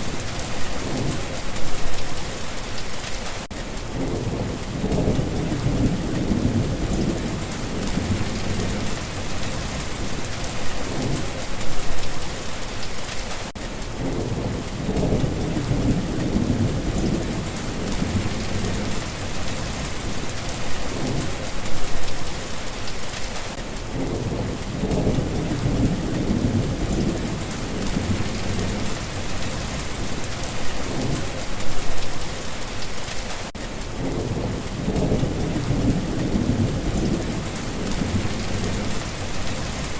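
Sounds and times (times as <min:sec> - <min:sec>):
low rolling thunder: 0:00.0 - 0:02.0, 0:03.9 - 0:12.1, 0:14.0 - 0:22.2, 0:23.9 - 0:32.0, 0:33.9 - 0:39.9
heavy rain falling: 0:00.0 - 0:39.9.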